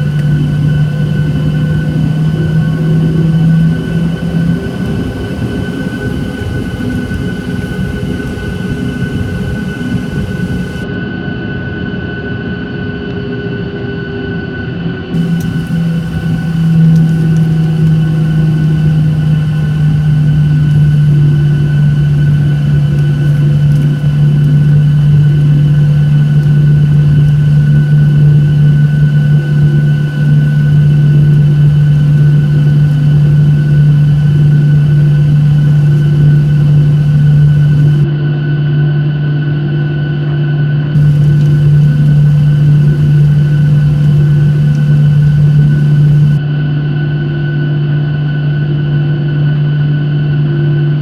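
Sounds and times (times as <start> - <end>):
thin whining tones: 0.0 - 10.8, 15.2 - 38.1, 41.0 - 46.4
jet engine drone: 0.0 - 12.8, 13.7 - 38.1, 41.0 - 46.4.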